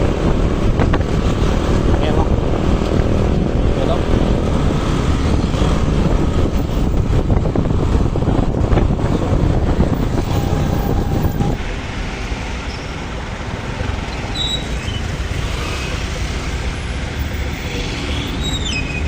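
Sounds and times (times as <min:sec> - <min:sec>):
wind buffeting microphone: 0:00.0 - 0:14.1
road traffic rumble: 0:00.0 - 0:19.0.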